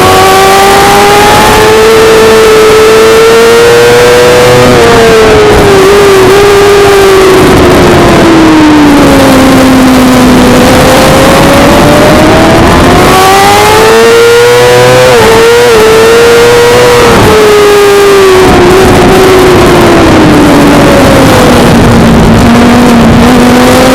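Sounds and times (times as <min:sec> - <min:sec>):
constant rushing noise: 0:00.0 - 0:23.9
motorcycle engine revving: 0:00.0 - 0:23.9.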